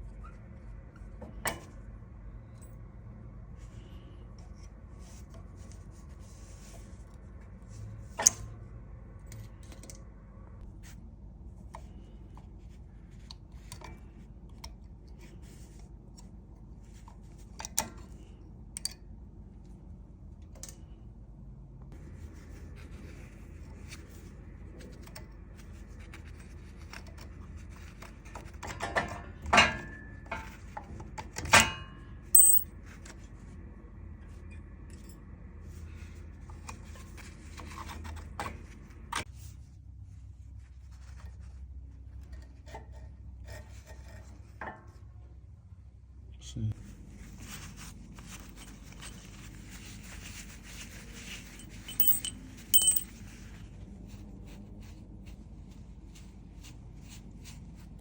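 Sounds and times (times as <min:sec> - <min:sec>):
metal tools clicking and clinking: 0:32.4 - 0:32.6, 0:51.6 - 0:53.1.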